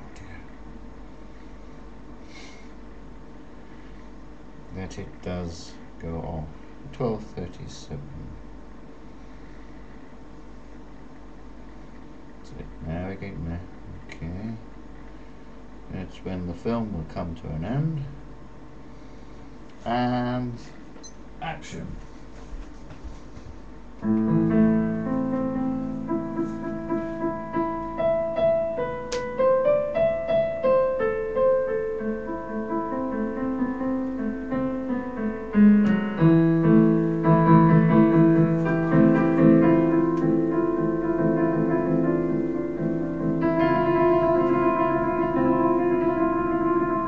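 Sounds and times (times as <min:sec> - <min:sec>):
recorded piano melody: 0:24.0 - 0:47.0.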